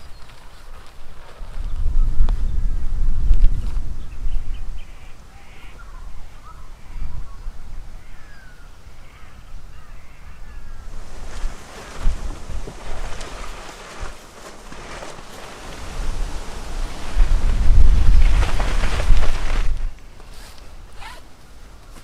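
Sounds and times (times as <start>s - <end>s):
bird calls and chirps: 0.0s - 0.8s, 3.5s - 11.5s
wind rumble on microphone: 0.0s - 21.2s
rushing gust of wind: 10.8s - 19.9s.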